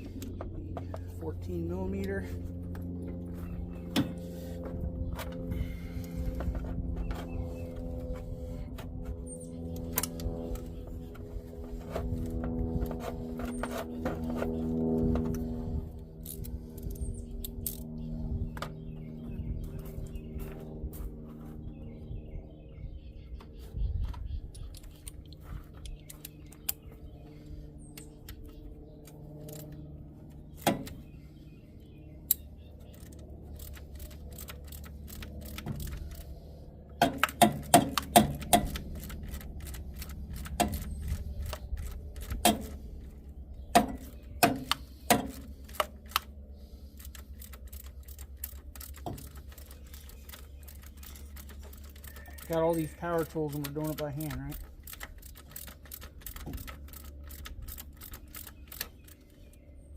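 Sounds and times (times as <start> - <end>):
steady low hum: 0.0 - 59.9
sharp clicks and knocks: 30.5 - 31.1, 32.3 - 36.3, 37.0 - 46.3, 47.0 - 52.6, 53.2 - 59.4.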